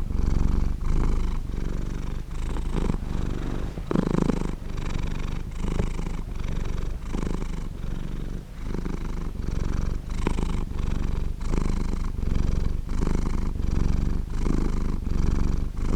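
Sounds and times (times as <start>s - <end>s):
cat purring: 0.0s - 15.9s.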